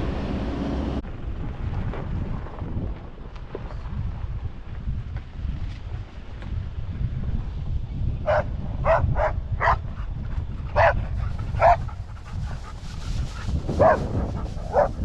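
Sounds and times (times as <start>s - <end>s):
steady low rumble: 0.0s - 15.0s
dog yipping: 10.8s - 12.1s, 13.8s - 15.0s.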